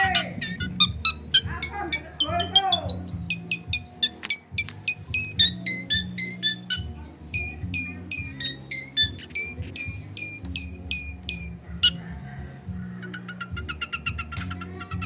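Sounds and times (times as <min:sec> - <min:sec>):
bird singing sharp high notes: 0:00.0 - 0:11.6
background music: 0:00.0 - 0:15.0.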